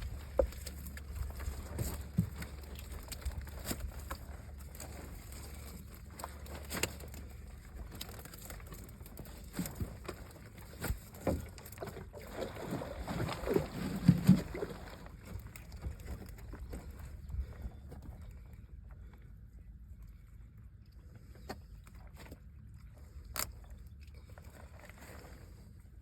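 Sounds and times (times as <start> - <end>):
steady low rumble: 0.0 - 11.0, 14.1 - 26.0
knocks and thumps in boat: 0.0 - 18.4.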